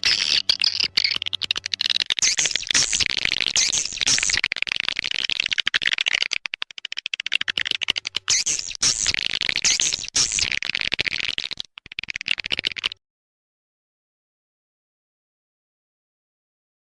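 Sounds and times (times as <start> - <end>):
swiftlets twittering: 0.0 - 12.2
rapid clicks: 0.0 - 13.0.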